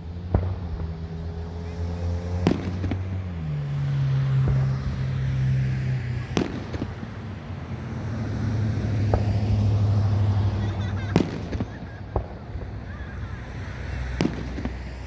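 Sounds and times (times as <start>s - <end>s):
fireworks exploding: 0.0s - 5.0s, 5.9s - 15.0s.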